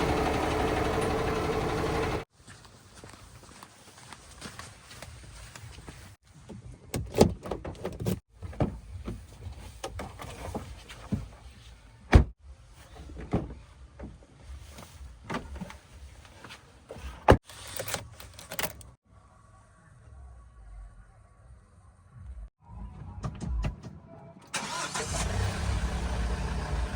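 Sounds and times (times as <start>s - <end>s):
backhoe diesel engine: 0.0s - 2.3s, 24.6s - 26.9s.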